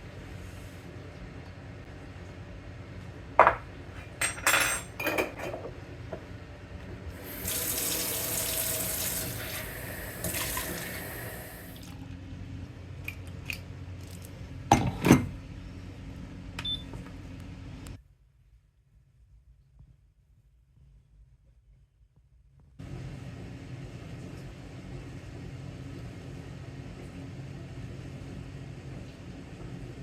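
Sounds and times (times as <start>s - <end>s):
dishes clinking at sink: 3.4s - 5.8s
kitchen tap running: 7.1s - 12.1s.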